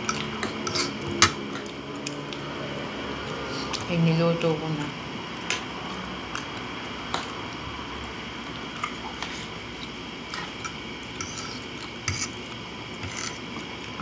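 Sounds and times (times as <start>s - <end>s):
person chewing: 0.0s - 2.5s, 5.4s - 7.6s, 8.4s - 14.0s.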